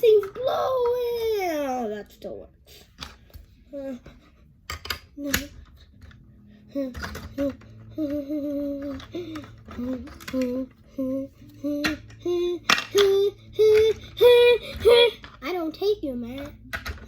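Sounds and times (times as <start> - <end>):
child humming a tune: 6.5 - 15.2.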